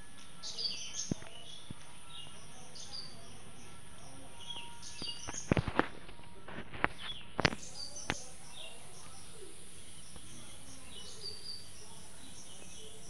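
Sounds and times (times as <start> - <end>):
small birds chirping: 0.0 - 13.0
steady background hiss: 0.0 - 13.0.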